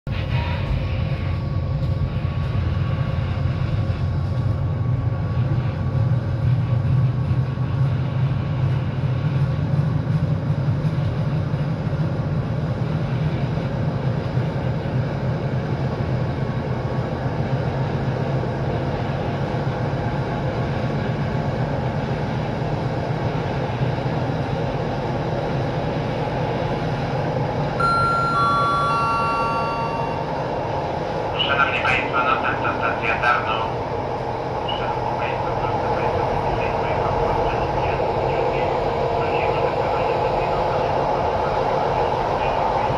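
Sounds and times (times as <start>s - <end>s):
train wheels rumbling on rails: 0.1s - 27.5s.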